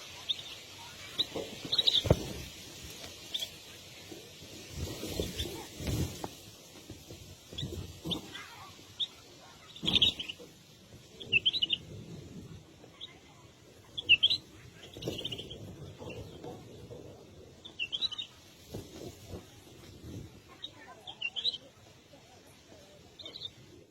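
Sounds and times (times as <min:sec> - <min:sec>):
bird chirping: 0:00.2 - 0:02.4, 0:07.5 - 0:10.5, 0:11.2 - 0:11.9, 0:13.9 - 0:16.6, 0:17.6 - 0:18.4, 0:20.6 - 0:21.7, 0:23.1 - 0:23.6.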